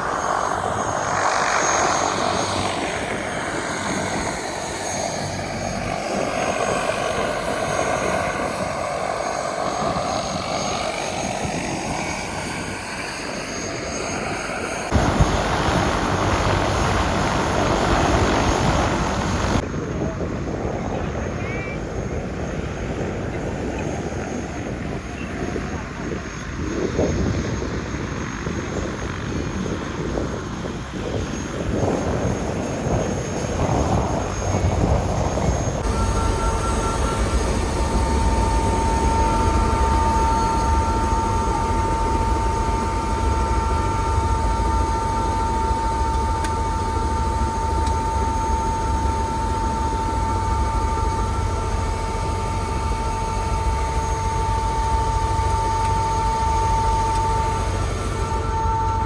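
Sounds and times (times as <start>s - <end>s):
helicopter rotor and engine: 0.0s - 59.0s.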